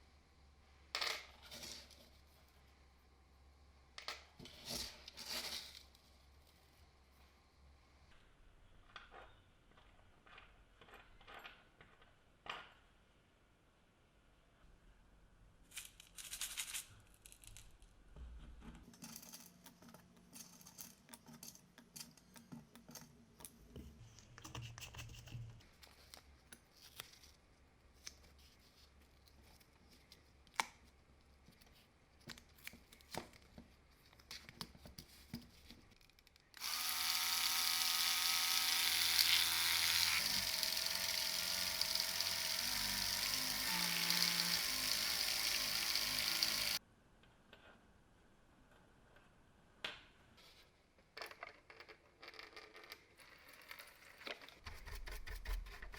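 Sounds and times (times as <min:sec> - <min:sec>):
small electric power tool whine: 0:36.6 - 0:46.8.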